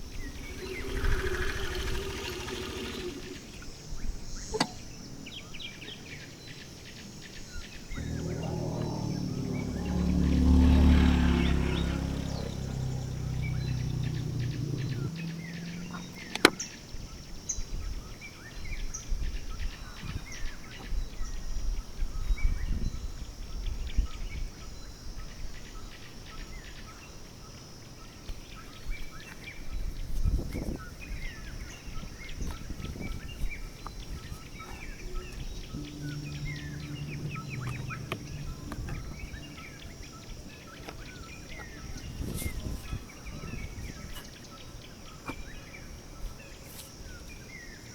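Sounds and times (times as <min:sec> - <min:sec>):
low hum: 0:00.0 - 0:03.8, 0:07.9 - 0:16.3, 0:34.2 - 0:43.7
small birds chirping: 0:00.0 - 0:17.7, 0:30.1 - 0:47.9.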